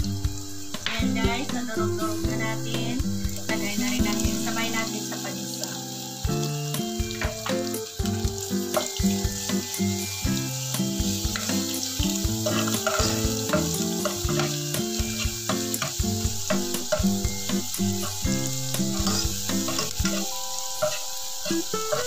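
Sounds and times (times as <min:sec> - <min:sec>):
garlic sizzling in hot oil: 0:00.0 - 0:22.0
metal ladle scraping pot: 0:12.4 - 0:14.6, 0:18.8 - 0:22.0.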